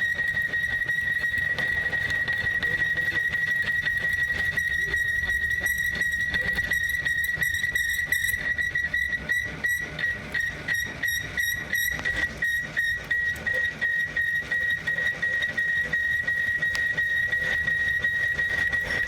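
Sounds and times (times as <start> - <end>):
machine high-pitched pulsing whine: 0.0 - 19.0.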